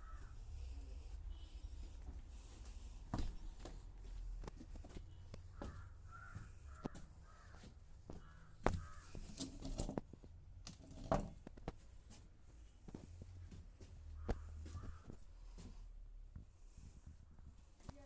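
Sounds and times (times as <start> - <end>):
crow cawing: 0.0 - 0.4, 5.5 - 9.3, 14.2 - 15.2.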